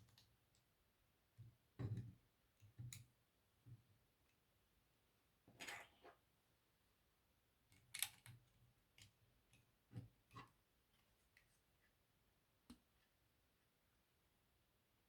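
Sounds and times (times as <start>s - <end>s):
plastic building bricks clicking: 7.8s - 8.4s.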